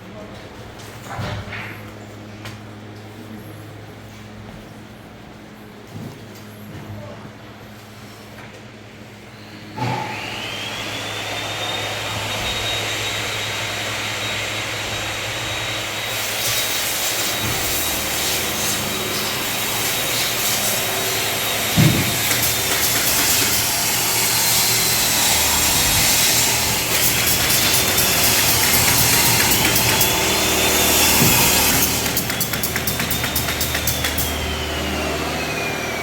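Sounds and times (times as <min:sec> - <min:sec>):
power tool motor whine: 0:09.8 - 0:36.0
thump: 0:21.8 - 0:22.1.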